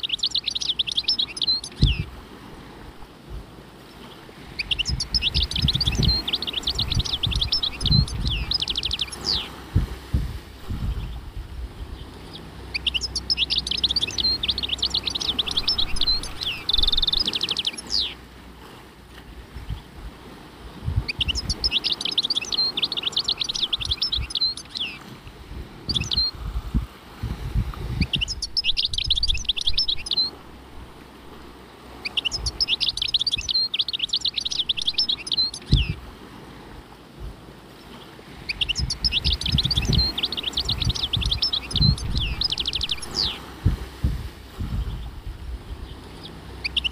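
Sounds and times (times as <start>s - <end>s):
songbird twittering: 0.0s - 2.1s, 3.8s - 9.6s, 10.6s - 18.2s, 21.0s - 25.1s, 25.8s - 26.4s, 28.0s - 36.0s, 37.8s - 43.7s, 44.7s - 46.9s.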